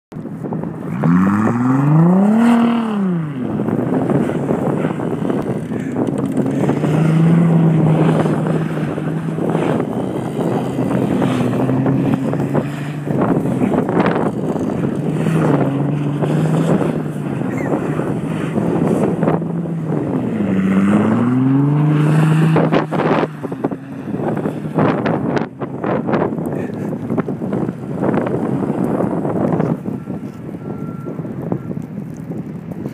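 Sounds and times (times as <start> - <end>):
wind buffeting microphone: 0.1 - 32.9
car engine revving hard: 0.9 - 26.3.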